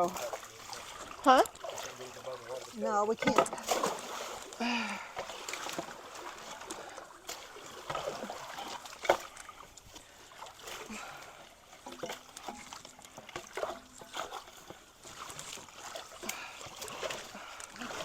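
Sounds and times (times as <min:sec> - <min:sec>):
creek water splashing: 0:00.0 - 0:18.0
sharp splash or knock: 0:03.2 - 0:04.4.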